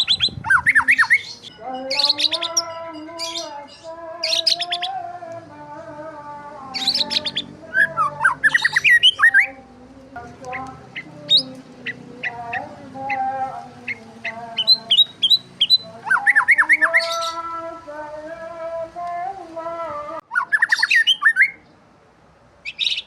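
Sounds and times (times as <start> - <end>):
birds chirping and squawking: 0.0 - 5.1, 6.5 - 17.7, 20.2 - 21.7, 22.6 - 23.0.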